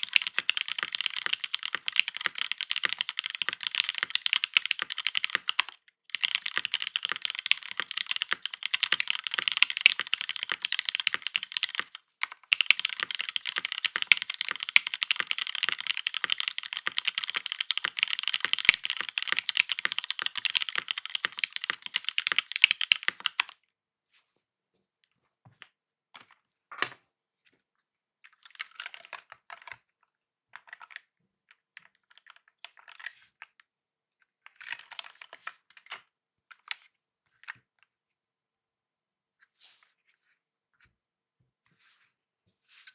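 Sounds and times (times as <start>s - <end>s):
fast typing on mechanical keyboard: 0.0s - 23.6s, 28.4s - 29.8s, 34.5s - 35.4s.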